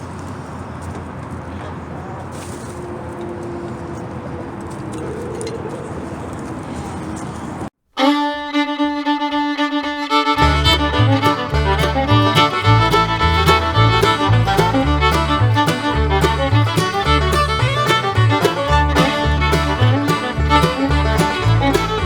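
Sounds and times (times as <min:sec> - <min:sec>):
fiddle tune: 0:07.9 - 0:22.0
guitar: 0:08.0 - 0:22.0
bouncing bass line: 0:10.4 - 0:22.0.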